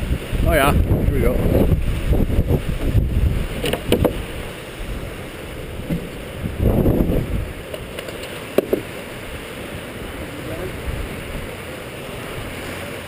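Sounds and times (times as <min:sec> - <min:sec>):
wind buffeting microphone: 0:00.0 - 0:13.0
sharp knocks: 0:03.6 - 0:04.2, 0:07.7 - 0:08.9.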